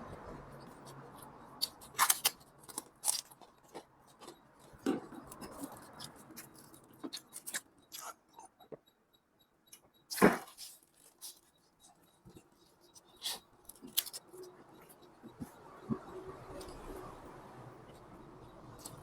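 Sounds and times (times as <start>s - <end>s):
chewing noodles: 0.6s - 8.7s, 10.1s - 16.9s.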